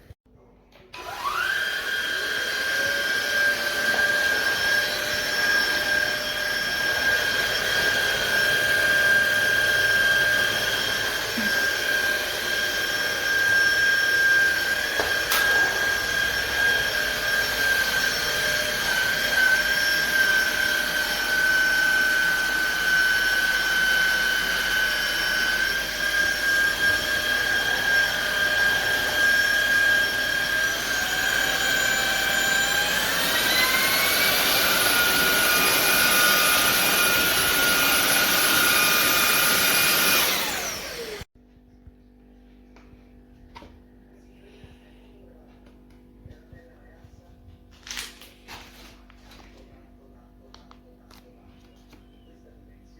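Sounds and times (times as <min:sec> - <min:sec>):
vacuum motor whine: 0:00.8 - 0:41.3.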